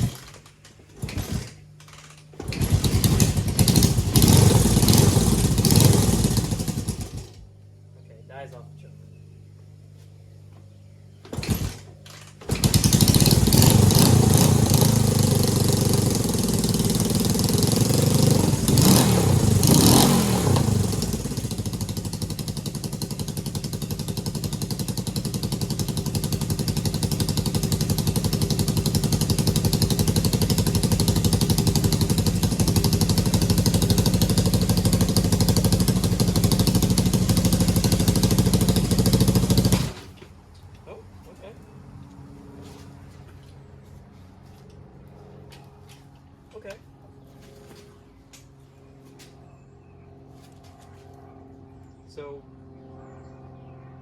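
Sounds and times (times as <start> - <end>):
motorcycle engine starting and revving: 0.0 - 7.6, 11.1 - 40.4.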